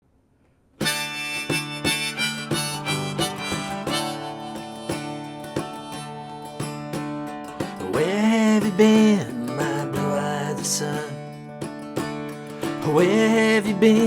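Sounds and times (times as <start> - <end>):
harmonica long notes: 0.8 - 7.6
strummed acoustic guitar: 0.8 - 14.0.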